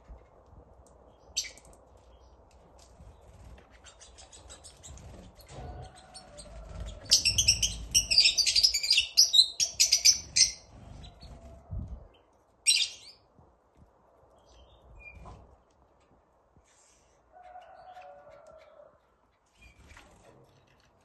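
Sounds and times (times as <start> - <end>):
bird chirping: 3.8 - 11.4, 12.2 - 13.2.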